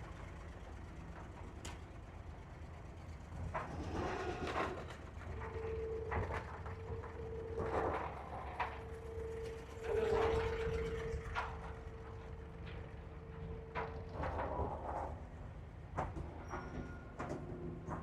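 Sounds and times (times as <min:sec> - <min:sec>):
steady humming tone: 0:05.2 - 0:15.7.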